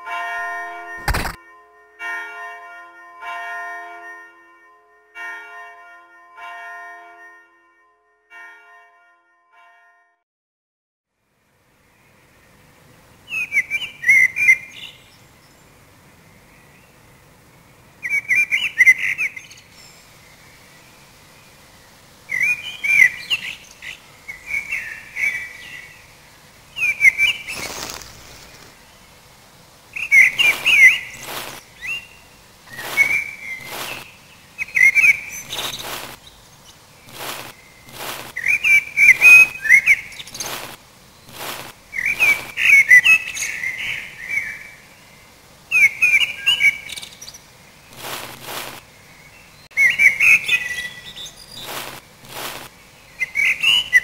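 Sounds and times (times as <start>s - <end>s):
sharp clicks: 1.0s - 1.4s
warbling chirping whistles: 30.0s - 32.1s, 32.7s - 36.2s, 37.1s - 40.6s, 41.3s - 44.6s.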